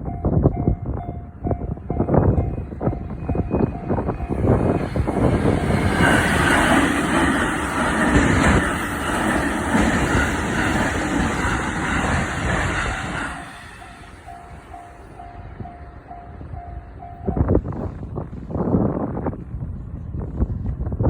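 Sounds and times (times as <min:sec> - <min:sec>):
level crossing warning bell: 0:00.0 - 0:05.2, 0:13.6 - 0:17.8
electric train passing: 0:00.0 - 0:21.0.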